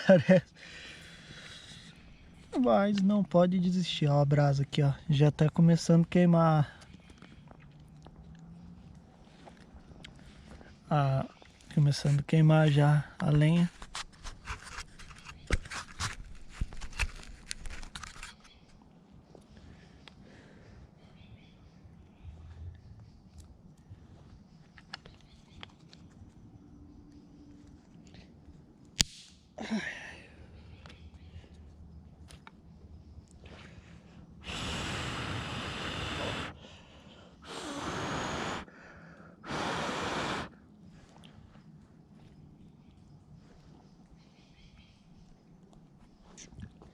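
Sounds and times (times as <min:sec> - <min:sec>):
campfire twigs crackling: 0:11.4 - 0:18.8
person blowing on embers: 0:34.4 - 0:36.7, 0:37.4 - 0:40.6
faint hiss: 0:34.4 - 0:40.7.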